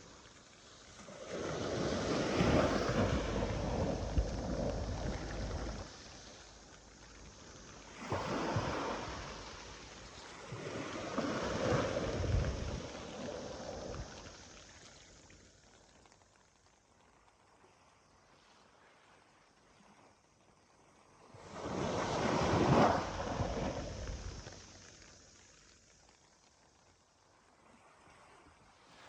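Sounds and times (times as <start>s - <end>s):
sea waves breaking: 0.0s - 15.3s, 21.3s - 25.3s.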